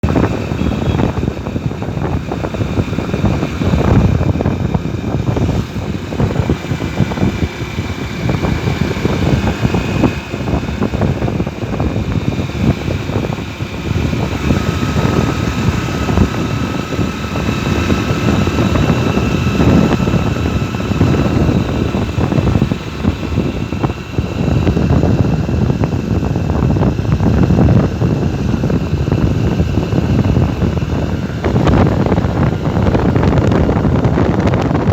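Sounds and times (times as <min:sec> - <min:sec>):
motorcycle running: 0:00.0 - 0:34.9
wind rumbling on microphone: 0:00.0 - 0:34.9.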